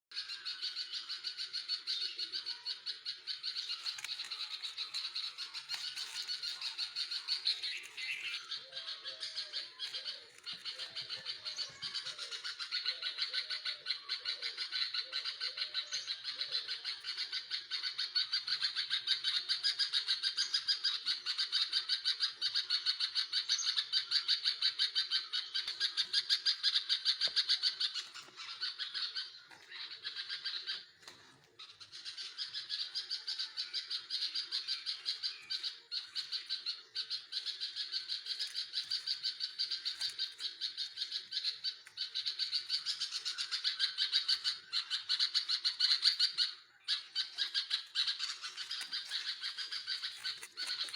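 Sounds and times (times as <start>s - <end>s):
nestlings chirping: 0.2s - 13.0s, 25.3s - 50.9s.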